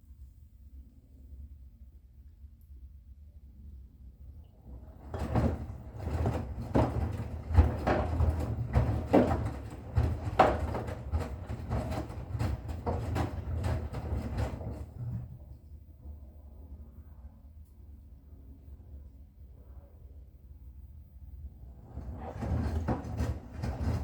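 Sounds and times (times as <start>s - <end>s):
washing machine motor hum: 4.6s - 15.6s, 21.6s - 24.0s
laundry tumbling: 4.9s - 15.5s, 21.8s - 24.0s.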